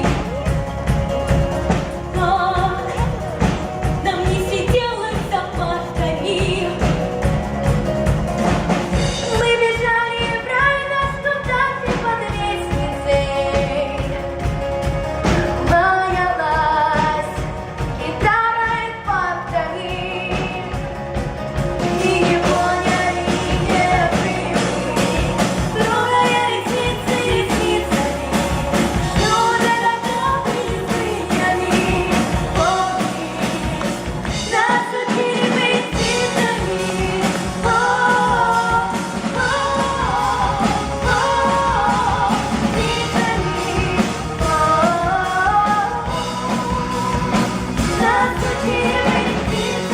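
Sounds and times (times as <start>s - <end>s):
pop song with singing and band: 0.0s - 49.9s.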